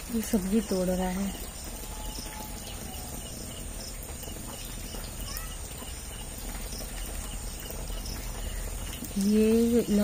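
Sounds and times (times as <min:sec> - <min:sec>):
rain falling: 0:00.0 - 0:10.0
faint high chirps: 0:00.5 - 0:10.0.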